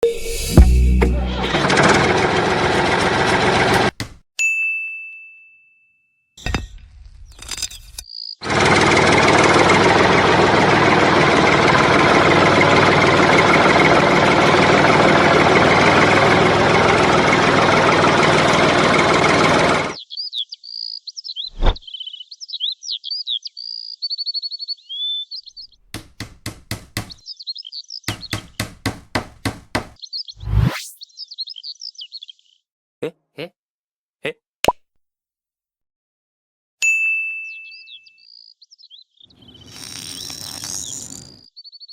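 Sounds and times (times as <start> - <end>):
motor running steadily: 0.6 - 3.9, 8.5 - 20.0
sharp knocks: 3.7 - 4.2, 25.9 - 27.2, 28.1 - 30.0
ding: 4.4 - 6.3, 36.8 - 38.0
birds chirping: 20.0 - 32.6, 37.7 - 39.8.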